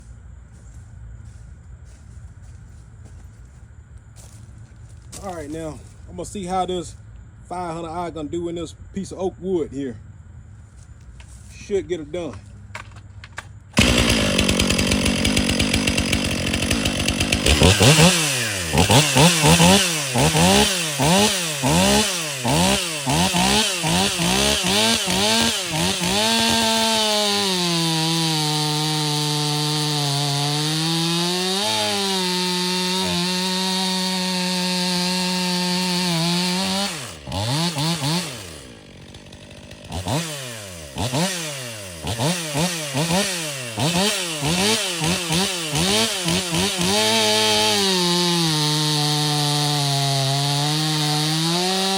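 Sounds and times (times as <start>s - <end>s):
chainsaw revving and cutting wood: 12.0s - 51.9s.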